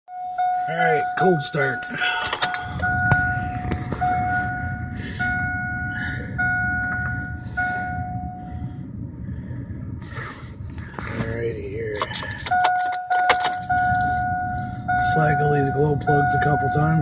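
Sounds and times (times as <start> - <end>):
warning chime repeating: 0.3 - 8.4, 12.0 - 17.0
low rumble: 1.0 - 17.0.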